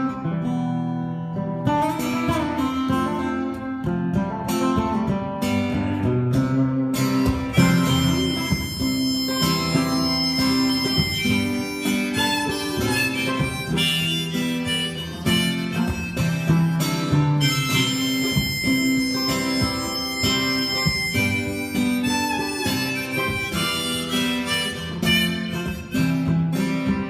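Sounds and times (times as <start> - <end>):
acoustic guitar strumming: 0.0 - 27.0
harmonica playing: 7.2 - 27.0.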